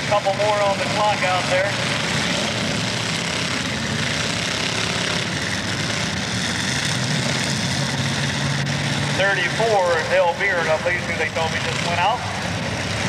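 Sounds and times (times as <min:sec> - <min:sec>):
car engines running: 0:00.0 - 0:13.0
low steady engine note: 0:00.0 - 0:13.0.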